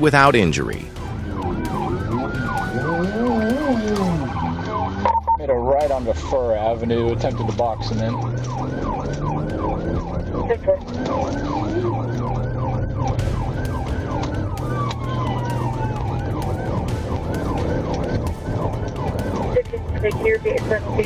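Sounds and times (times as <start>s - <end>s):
falling siren tone: 0.0s - 21.0s
police siren yelping: 0.0s - 21.0s
low vehicle drone: 0.8s - 21.0s.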